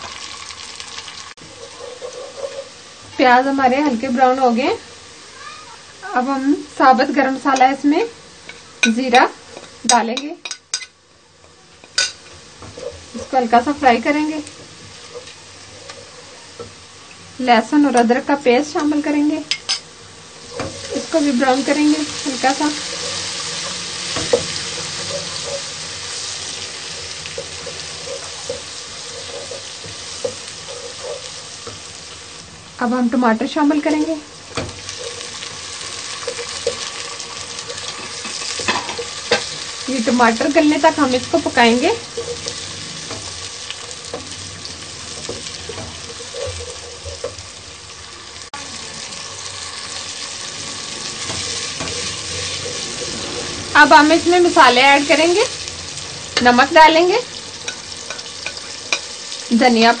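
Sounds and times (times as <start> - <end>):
onions sizzling in hot oil: 0.0 - 60.0
wooden spatula scraping pot: 1.4 - 2.8, 20.5 - 31.9, 33.8 - 43.4.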